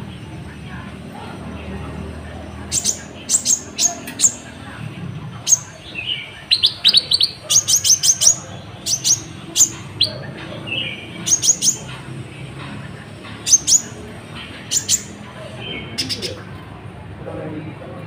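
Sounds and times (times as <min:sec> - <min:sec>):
sunbird chirping: 0:02.3 - 0:04.7, 0:05.4 - 0:12.0, 0:13.4 - 0:16.4.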